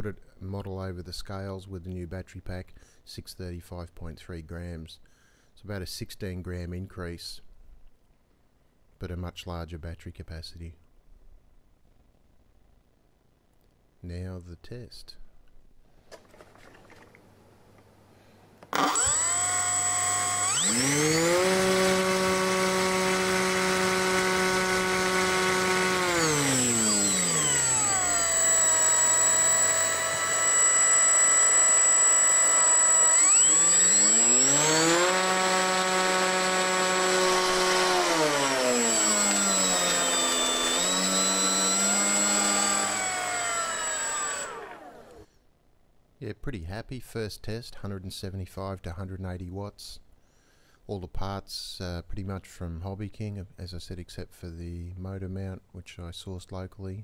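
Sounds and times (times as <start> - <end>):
electric motor spinning propeller: 18.7 - 45.2
steady high whine: 18.8 - 45.2.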